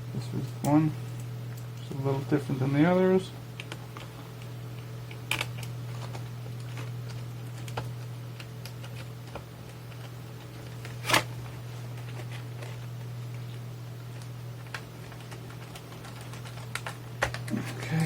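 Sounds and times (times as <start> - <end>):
steady low hum: 0.0 - 18.0
small parts clicking and tapping: 3.6 - 10.8, 14.1 - 17.6.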